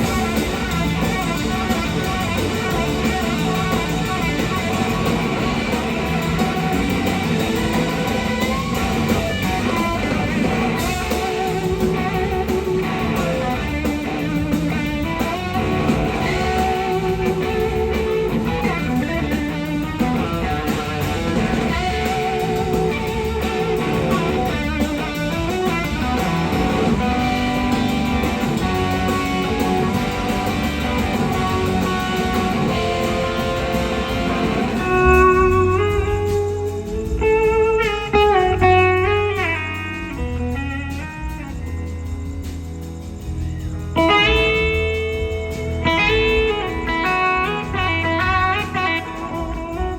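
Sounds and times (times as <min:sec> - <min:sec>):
bass and drums: 0:00.0 - 0:49.9
electric slide guitar solo: 0:45.8 - 0:49.9.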